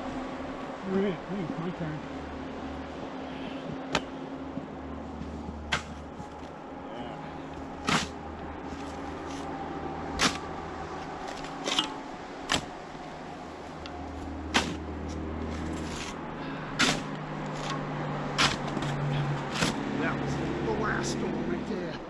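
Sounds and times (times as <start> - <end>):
low steady hum: 0.0 - 22.0
snow shovel scraping snow: 7.8 - 9.4.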